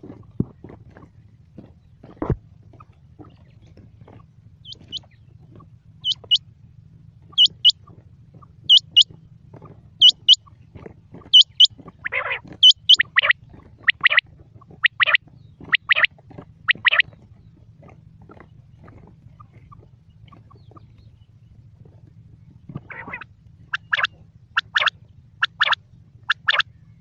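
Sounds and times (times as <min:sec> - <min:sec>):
quail calling: 0:04.6 - 0:06.4, 0:07.3 - 0:10.6, 0:11.2 - 0:16.1, 0:16.7 - 0:17.1, 0:19.3 - 0:21.0, 0:22.7 - 0:26.6.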